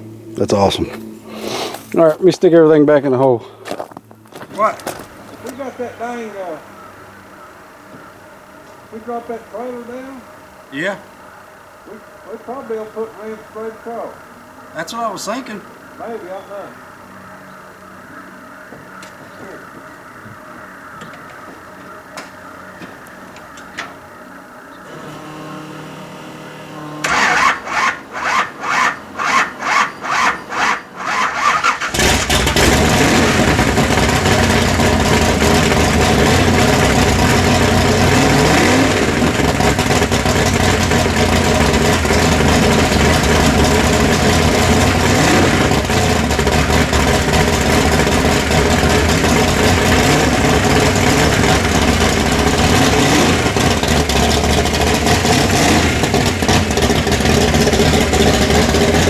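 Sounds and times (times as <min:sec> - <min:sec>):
engine running and revving: 0:24.8 - 0:59.0
engine starter cranking: 0:24.8 - 0:59.0.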